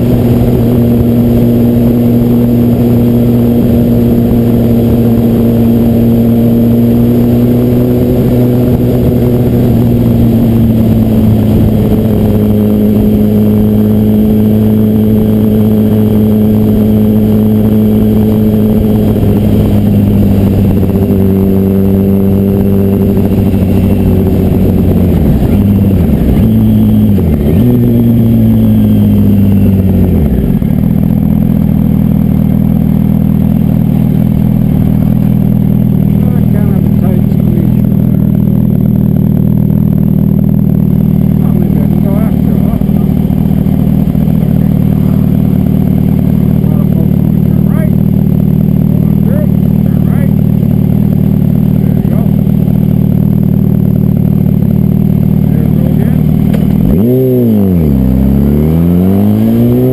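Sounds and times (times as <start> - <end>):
motorcycle engine: 0.0 - 59.9.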